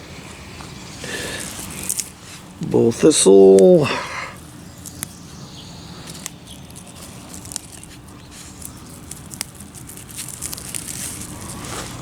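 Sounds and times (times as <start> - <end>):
weeds rustling as pulled: 0.0 - 12.0
small clicks and snaps: 4.8 - 5.2, 6.0 - 11.6.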